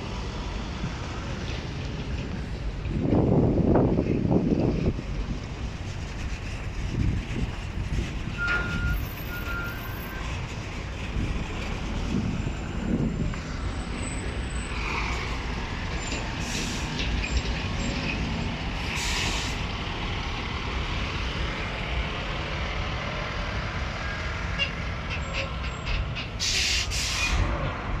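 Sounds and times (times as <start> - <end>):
diesel train rumbling: 0.0 - 28.0
air hissing bursts: 26.4 - 27.4.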